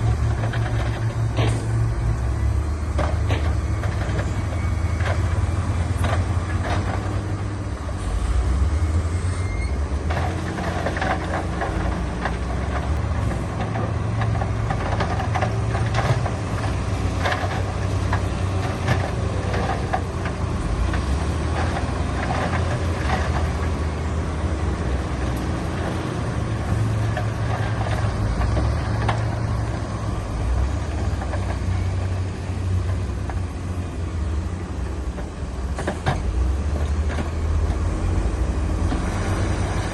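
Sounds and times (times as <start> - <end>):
heavy machinery diesel engines: 0.0 - 39.9.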